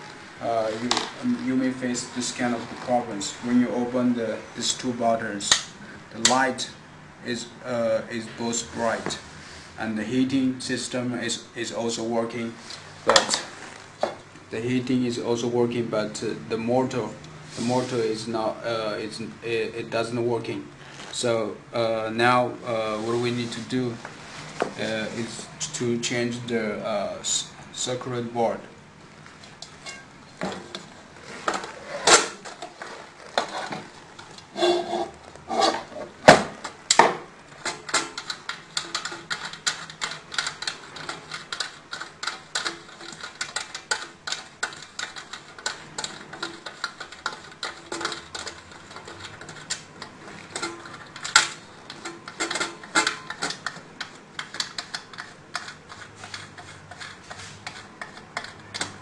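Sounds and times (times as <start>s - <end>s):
hand tools clicking and clinking: 37.6s - 59.0s.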